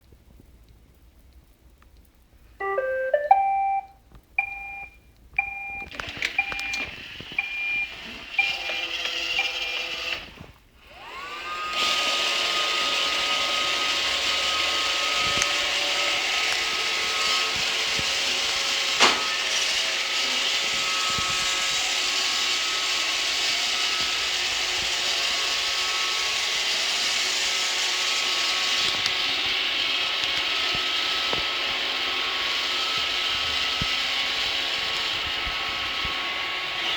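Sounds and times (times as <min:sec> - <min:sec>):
robot vacuum start-up tune: 0:02.6 - 0:03.9
electronic beeps: 0:02.6 - 0:05.7
vacuum motor and brushes running: 0:06.0 - 0:36.9.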